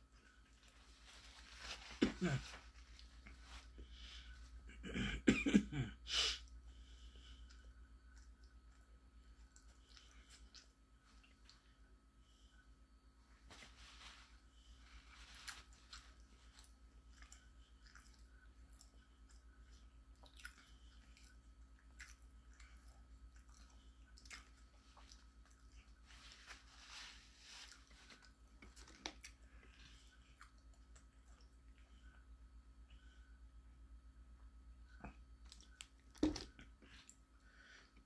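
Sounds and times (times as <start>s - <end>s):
person chewing a sandwich: 6.4s - 12.6s, 14.2s - 33.4s, 34.8s - 37.9s.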